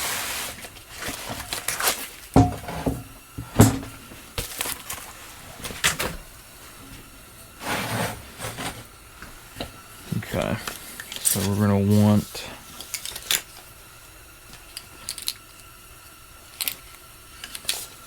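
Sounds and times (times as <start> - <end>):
steel plate clunking: 2.4 - 4.0
tools knocking on workbench: 2.4 - 4.0.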